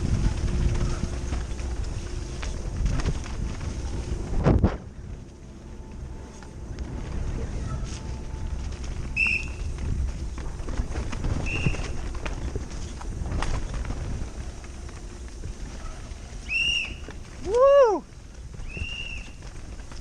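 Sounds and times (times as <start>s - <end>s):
wind and tyres on dirt: 0.0s - 20.0s
bike clattering over bumps: 8.2s - 20.0s
short high squeals: 16.4s - 18.0s.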